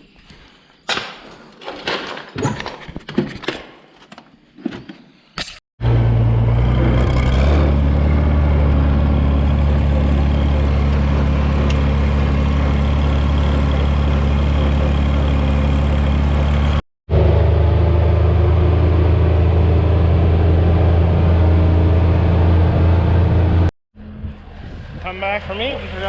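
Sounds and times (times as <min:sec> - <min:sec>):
heavy engine humming: 0:05.8 - 0:25.0.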